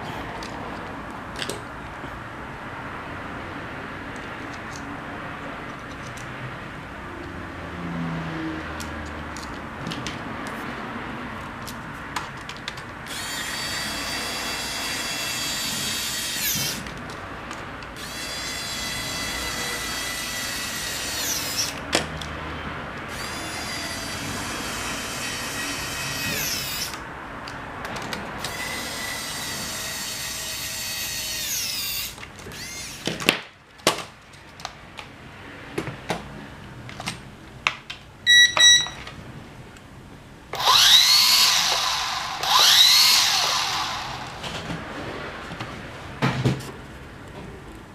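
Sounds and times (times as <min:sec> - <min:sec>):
drone motors whining: 0:40.6 - 0:44.6.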